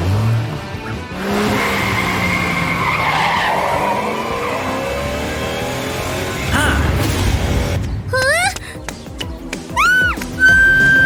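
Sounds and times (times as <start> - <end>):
cartoon tyres screeching: 0.8 - 7.5.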